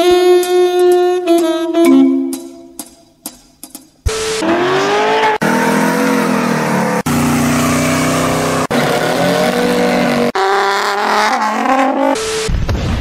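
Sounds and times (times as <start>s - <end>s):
car engines revving: 4.1s - 12.5s.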